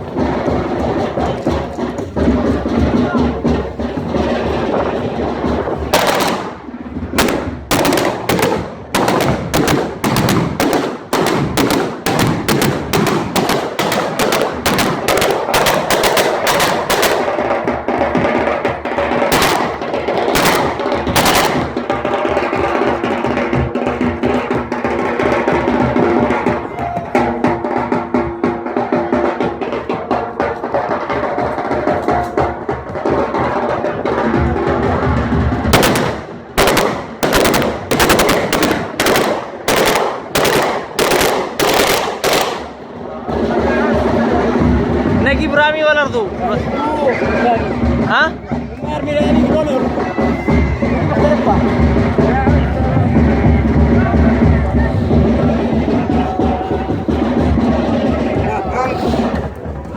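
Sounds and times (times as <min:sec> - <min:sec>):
loud music with drums: 0:00.0 - 0:59.9
rapid gunfire: 0:05.9 - 0:17.6, 0:19.2 - 0:21.9, 0:35.7 - 0:42.8.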